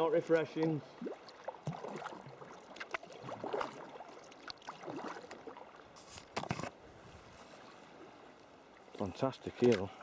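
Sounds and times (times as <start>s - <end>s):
water splashing and gurgling: 0.8s - 6.4s
kayak paddle strokes: 1.3s - 10.0s.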